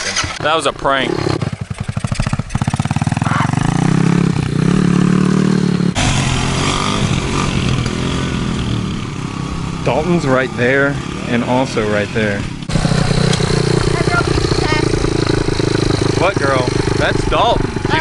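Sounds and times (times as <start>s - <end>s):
dirt bike engine revving: 0.0s - 18.0s
rushing noise: 5.8s - 9.7s.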